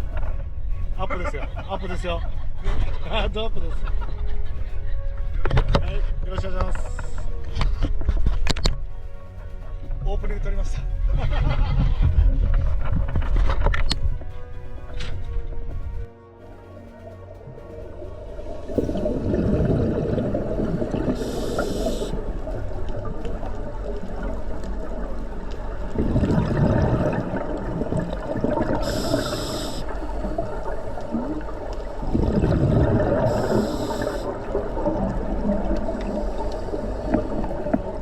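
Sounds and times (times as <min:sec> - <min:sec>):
bubbling underwater exhalations: 0:18.7 - 0:22.3, 0:25.9 - 0:38.0
regulator hiss: 0:20.6 - 0:25.8, 0:28.2 - 0:32.0, 0:32.7 - 0:38.0.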